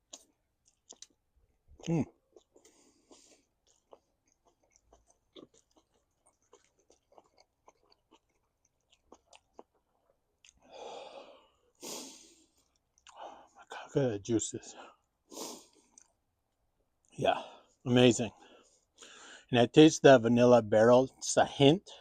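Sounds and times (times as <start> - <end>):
person chewing food: 0.0 - 13.6, 15.0 - 16.3
breathy exhales: 10.7 - 12.4.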